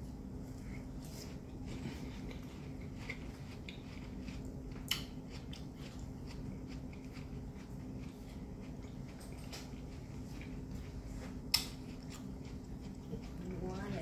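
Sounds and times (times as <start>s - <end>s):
steady low hum: 0.0s - 14.0s
watermelon being chewed: 0.4s - 14.0s.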